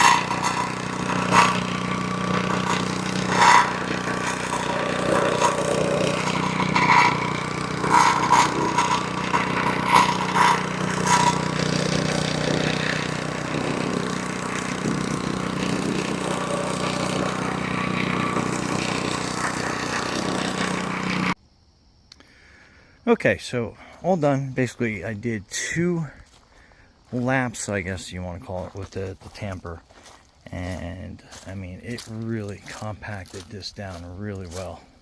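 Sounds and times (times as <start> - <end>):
plate compactor engine running: 0.0 - 21.4
plate vibrating over stone: 0.0 - 21.4
sharp clacks: 0.0 - 21.4.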